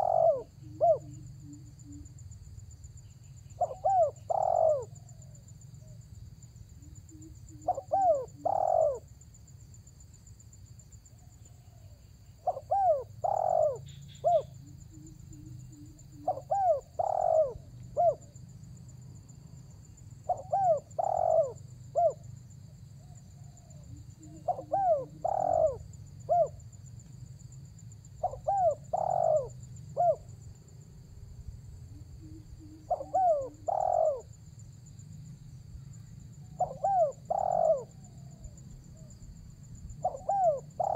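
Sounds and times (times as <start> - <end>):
dove cooing: 0.0 - 2.2, 3.5 - 5.4, 6.9 - 9.1, 11.5 - 18.4, 20.2 - 22.3, 23.0 - 26.6, 28.2 - 30.3, 31.9 - 34.4, 36.4 - 39.1, 40.0 - 40.9.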